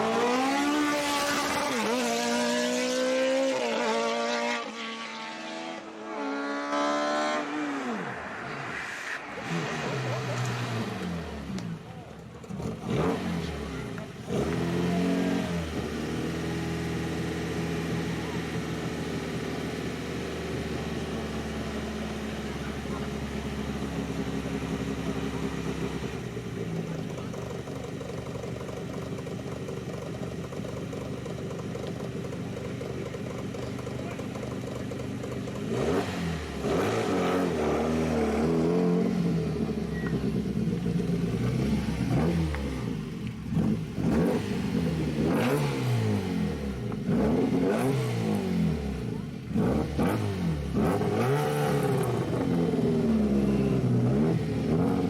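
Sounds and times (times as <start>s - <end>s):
racing car engine revving: 0.0s - 21.5s, 35.4s - 55.0s.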